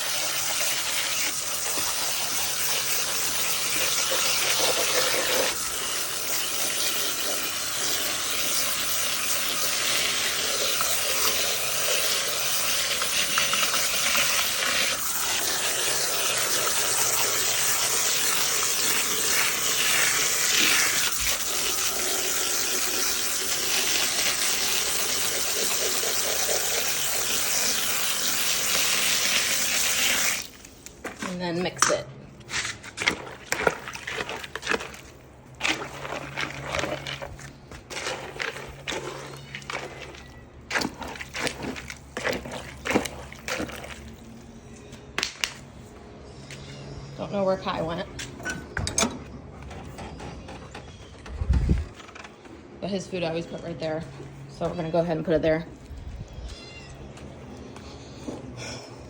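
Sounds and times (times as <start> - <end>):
water running into buckets: 0.0 - 31.8, 32.5 - 44.5.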